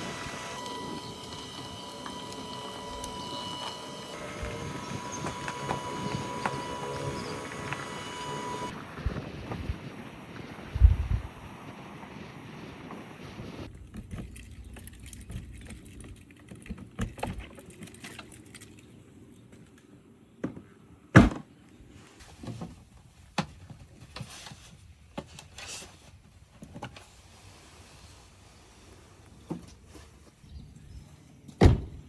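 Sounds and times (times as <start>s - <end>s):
wind noise: 4.2s - 15.6s.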